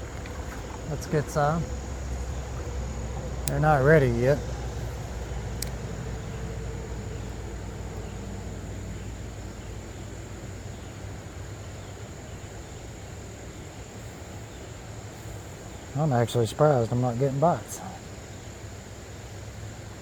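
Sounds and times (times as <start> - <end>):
insects droning: 0.0 - 20.0
low rush of creek noise: 0.0 - 20.0.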